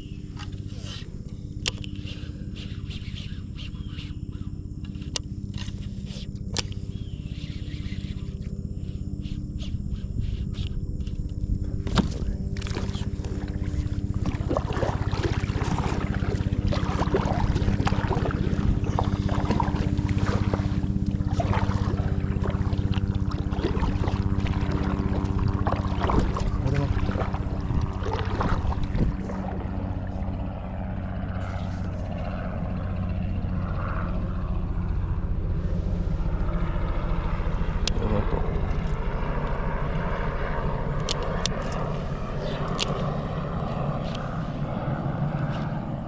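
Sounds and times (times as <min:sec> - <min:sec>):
steady low hum: 0:00.0 - 0:46.0
water sloshing around kayak: 0:10.9 - 0:37.9.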